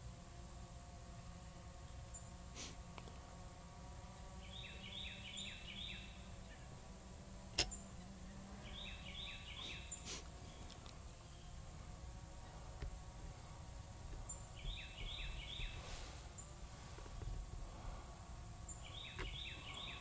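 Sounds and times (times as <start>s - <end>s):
songbird chirping: 0.5s - 17.3s, 18.6s - 20.0s
low outdoor rumble: 6.2s - 20.0s.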